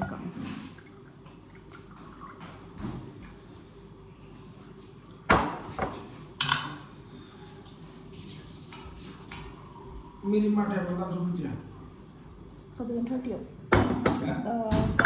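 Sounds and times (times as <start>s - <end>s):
faint running water: 4.1s - 11.7s.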